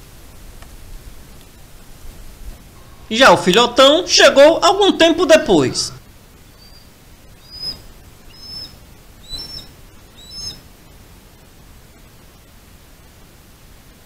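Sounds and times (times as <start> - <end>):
faint steady hiss: 0.0 - 14.0
short high bird calls: 6.6 - 10.6.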